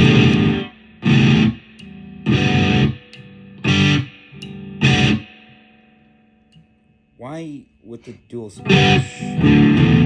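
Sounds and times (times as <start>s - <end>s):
distorted electric guitar chords: 0.0s - 6.3s, 8.6s - 10.0s.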